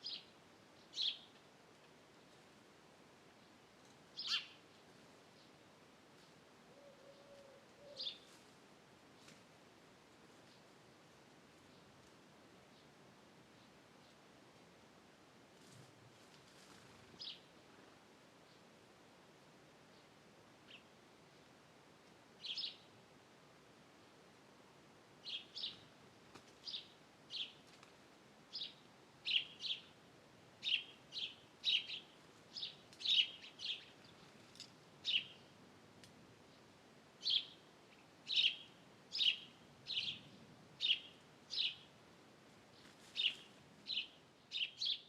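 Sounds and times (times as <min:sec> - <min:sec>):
bird chirping: 0:00.0 - 0:01.4, 0:04.2 - 0:04.6, 0:22.4 - 0:22.9, 0:25.2 - 0:25.9, 0:28.5 - 0:29.9, 0:30.6 - 0:34.3, 0:35.0 - 0:35.5, 0:36.5 - 0:41.9, 0:42.8 - 0:45.0
faint background hiss: 0:00.0 - 0:45.0.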